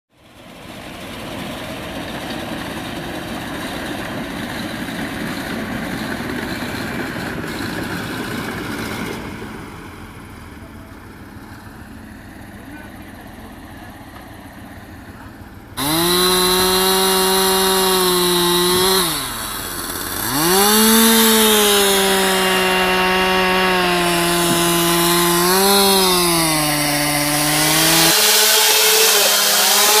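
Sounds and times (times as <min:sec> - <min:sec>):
chainsaw at high revs: 0:15.8 - 0:30.0.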